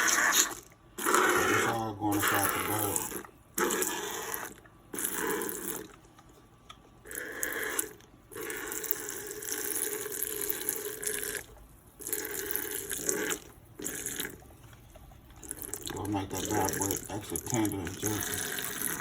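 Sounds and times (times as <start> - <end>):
liquid pouring into container: 7.1 - 19.0.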